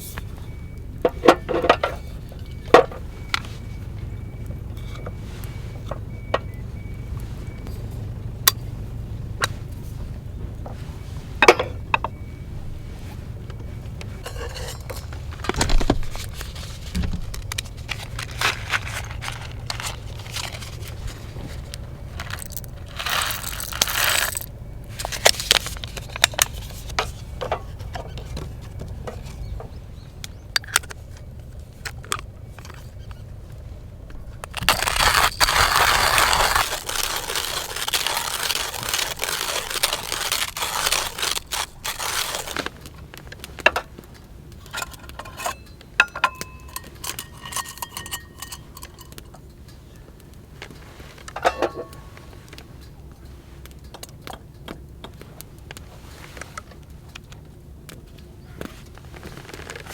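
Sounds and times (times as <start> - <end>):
utensils clinking and scraping: 1.0 - 3.8, 11.4 - 12.2, 13.6 - 29.5, 34.4 - 42.8, 44.6 - 49.5, 51.2 - 52.3.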